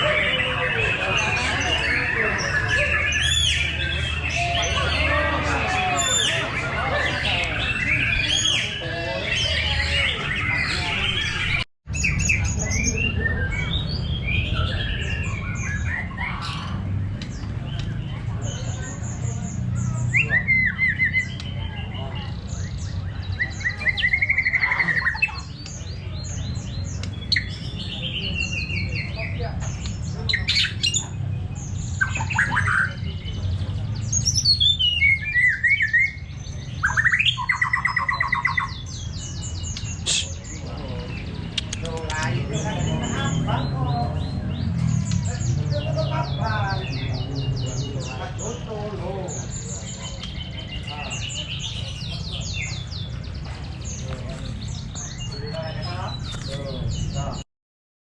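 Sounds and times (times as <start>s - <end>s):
songbirds singing and chirping: 0.0s - 57.4s.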